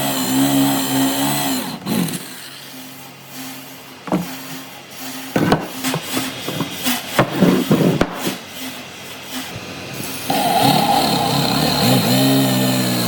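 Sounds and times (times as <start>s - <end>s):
irregular knocks and taps: 4.1s - 4.4s, 5.4s - 8.2s.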